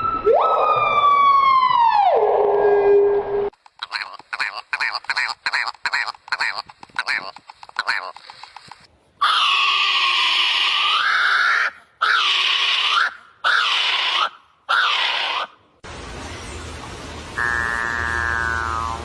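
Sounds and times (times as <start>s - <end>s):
harsh animal calls: 9.2s - 15.6s, 17.4s - 19.0s
steady pitched animal call: 9.2s - 15.6s, 17.4s - 19.0s.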